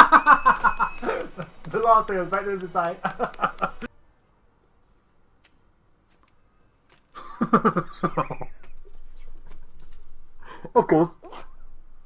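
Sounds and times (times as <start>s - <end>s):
person speaking: 0.0s - 3.9s.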